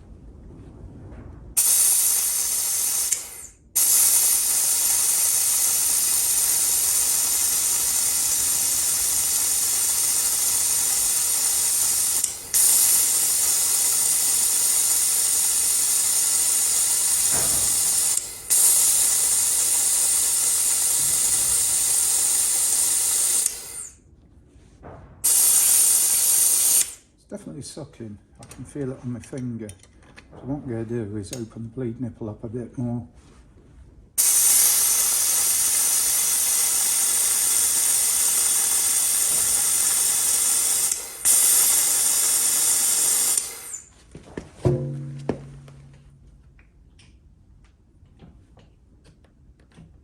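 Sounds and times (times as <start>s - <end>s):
compressed air hissing: 1.6s - 24.0s, 25.2s - 27.0s, 34.2s - 43.9s.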